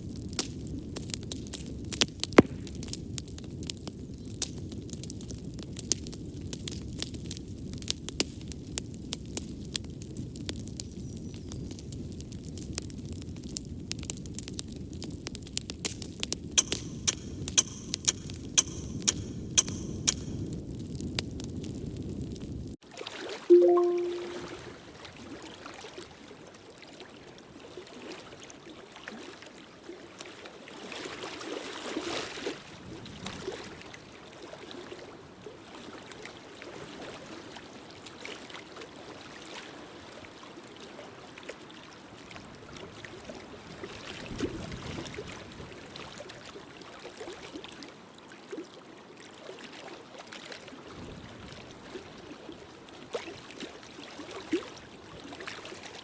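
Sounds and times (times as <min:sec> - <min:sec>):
sharp pops of fire: 0:16.6 - 0:20.4.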